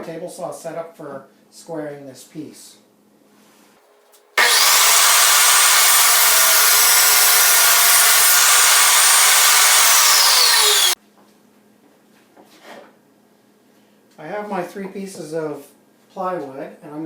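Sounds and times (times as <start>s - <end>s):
table saw cutting plywood: 4.4s - 11.0s.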